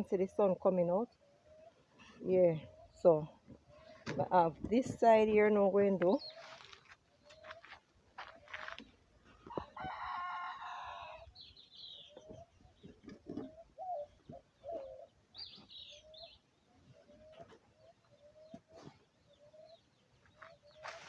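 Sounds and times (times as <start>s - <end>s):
bird chirps: 6.1s - 7.7s, 10.9s - 21.0s
rooster crowing: 9.5s - 11.4s
hens clucking: 12.0s - 15.3s.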